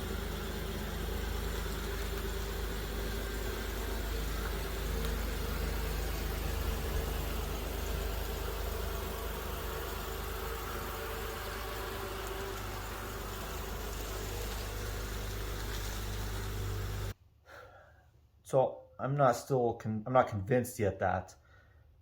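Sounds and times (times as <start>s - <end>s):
engine and road rumble in car: 0.0s - 17.2s.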